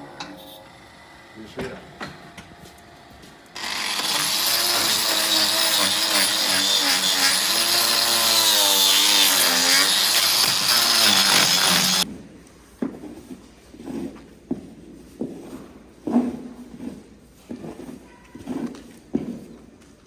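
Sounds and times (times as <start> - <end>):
power tool running: 2.7 - 12.1.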